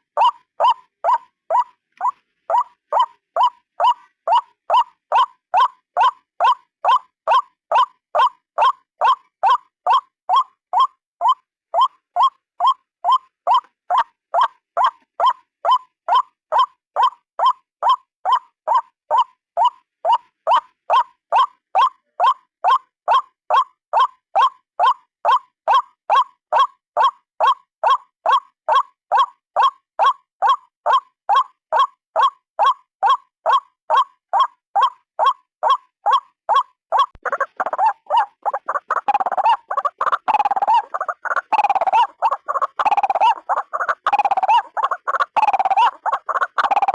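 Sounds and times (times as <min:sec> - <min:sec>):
waterhen calling: 0:34.0 - 0:46.9.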